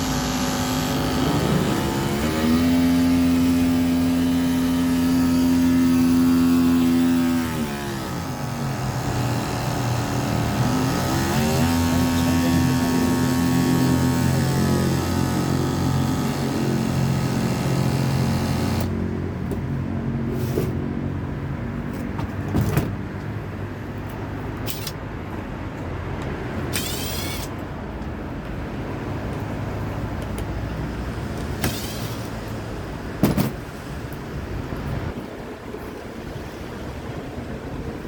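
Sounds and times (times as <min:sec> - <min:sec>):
motor running steadily: 0:00.0 - 0:19.0.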